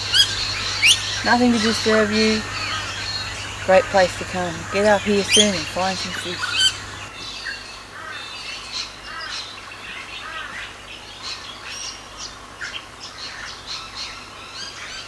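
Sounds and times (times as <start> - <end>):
birds chirping and squawking: 0.0 - 12.0.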